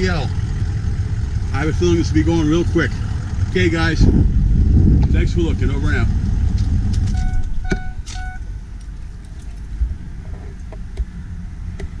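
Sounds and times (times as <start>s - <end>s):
diesel truck engine idling: 0.0s - 12.0s
short electronic beeps: 7.1s - 8.5s.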